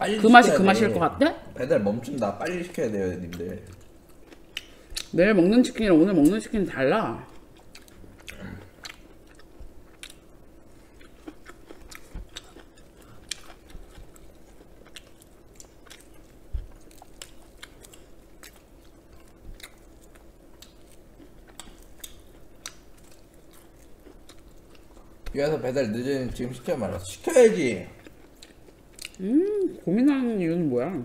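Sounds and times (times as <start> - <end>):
faint steady hum: 0.0 - 31.0
chewing and crunching: 7.2 - 25.4, 27.8 - 29.9.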